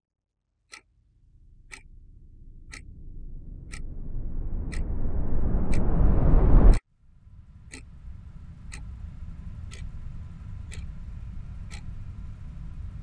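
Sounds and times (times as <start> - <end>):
clock ticking: 0.7 - 6.8, 9.7 - 10.0, 10.7 - 11.0, 11.7 - 12.0
low room tone hum: 0.9 - 13.0.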